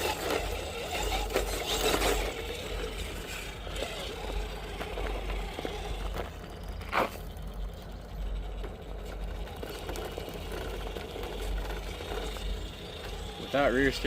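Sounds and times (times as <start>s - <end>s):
electric motor and gears running: 0.0s - 14.0s.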